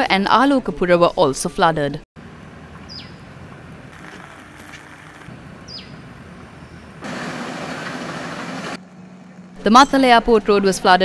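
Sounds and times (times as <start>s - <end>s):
steady low hiss: 2.2s - 8.8s
bird call: 2.8s - 3.3s, 5.6s - 7.0s
loud rushing noise: 7.0s - 8.8s.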